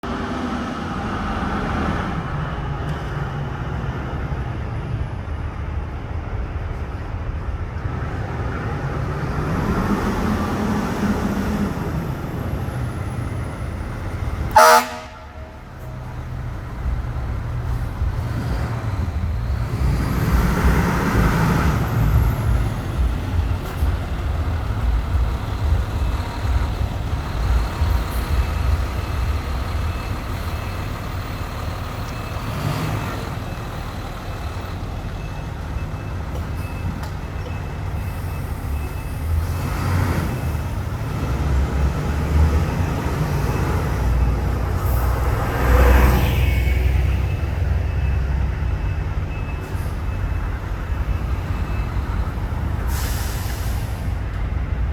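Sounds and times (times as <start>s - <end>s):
diesel engine running: 0.1s - 54.9s
air brake hisses: 52.8s - 54.2s.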